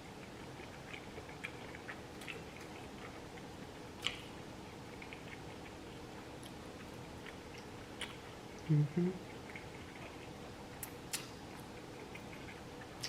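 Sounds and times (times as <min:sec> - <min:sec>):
soft chewing: 0:00.0 - 0:13.0
wet mouth clicks: 0:04.0 - 0:04.3, 0:10.8 - 0:11.3.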